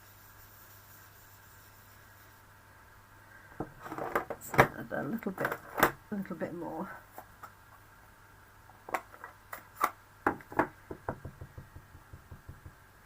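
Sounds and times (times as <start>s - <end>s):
brush tapping on ink pad: 10.3s - 12.8s.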